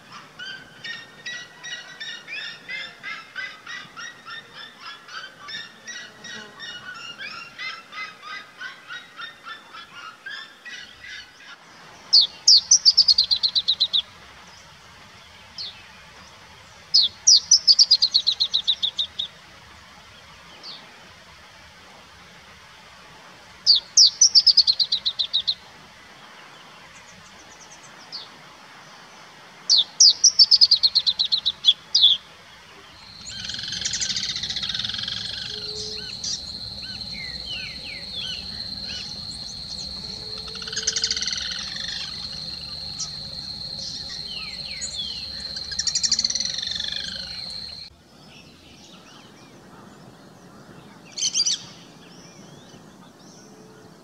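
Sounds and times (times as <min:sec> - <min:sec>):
songbird trill: 0:12.1 - 0:14.8, 0:16.9 - 0:19.4, 0:23.7 - 0:25.6, 0:29.7 - 0:32.2, 0:32.8 - 0:53.9
short bird calls: 0:32.9 - 0:47.9
steady high-pitched whine: 0:32.9 - 0:47.9.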